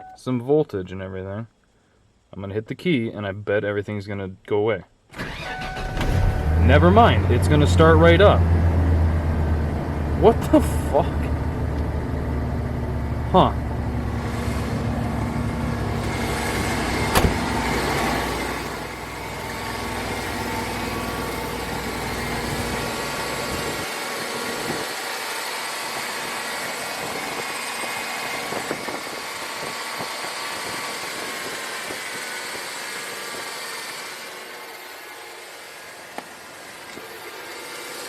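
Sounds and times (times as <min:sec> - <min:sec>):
truck engine idling: 0:06.2 - 0:23.9.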